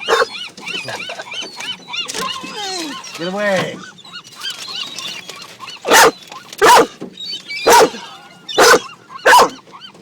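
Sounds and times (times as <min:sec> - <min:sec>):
dog barking: 0:00.0 - 0:00.3, 0:05.8 - 0:07.0, 0:07.6 - 0:08.0, 0:08.6 - 0:09.6
small birds chirping: 0:00.0 - 0:10.0.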